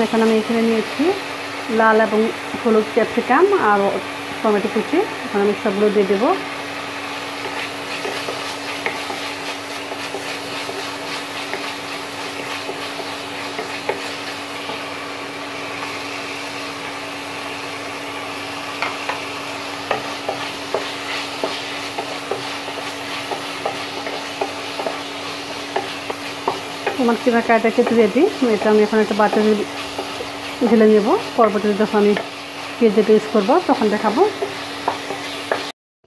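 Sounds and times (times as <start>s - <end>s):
meat sizzling in a frying pan: 0.0s - 35.7s
spatula scraping a pan: 7.1s - 14.9s, 18.8s - 32.8s, 33.7s - 35.7s.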